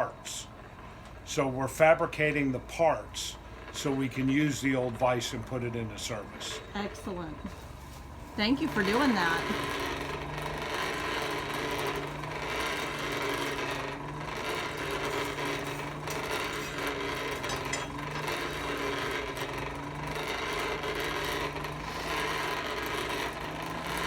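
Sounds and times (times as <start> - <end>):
steady hum: 6.2 - 24.0
metalworking tool strokes: 10.7 - 19.6.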